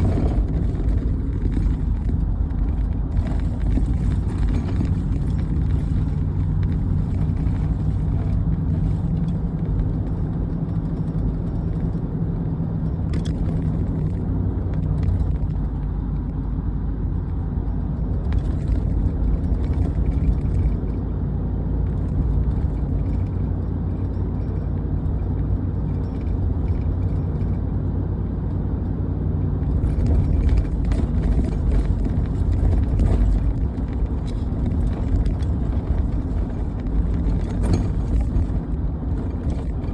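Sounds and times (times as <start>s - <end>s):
heavy engine droning: 0.0s - 9.4s.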